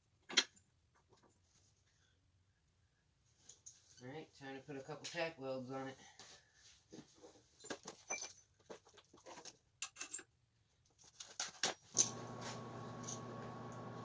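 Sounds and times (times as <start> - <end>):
welder electrical hum: 12.0 - 14.0.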